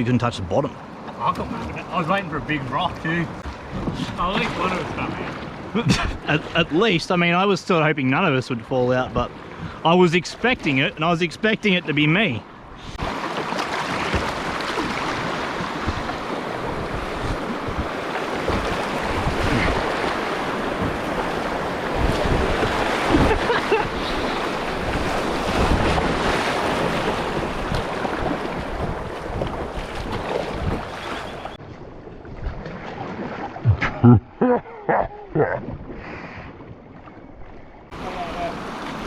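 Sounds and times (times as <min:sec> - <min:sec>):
river water rushing and splashing: 0:12.9 - 0:31.6, 0:37.9 - 0:39.0
wind buffeting microphone: 0:13.9 - 0:32.7.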